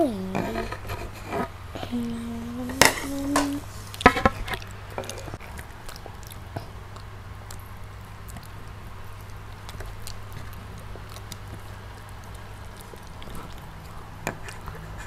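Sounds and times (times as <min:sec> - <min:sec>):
child humming: 0:00.0 - 0:00.8, 0:01.8 - 0:03.7
faint low hum: 0:00.0 - 0:15.0
child's loud vocal sounds: 0:01.8 - 0:03.6
chewing and biting food: 0:03.9 - 0:15.0.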